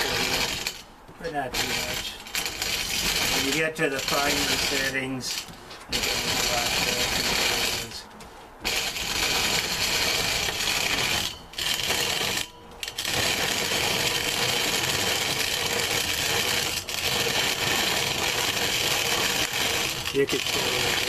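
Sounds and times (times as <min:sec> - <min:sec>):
corn grinder grinding rasp: 0:00.0 - 0:08.0, 0:08.6 - 0:21.0.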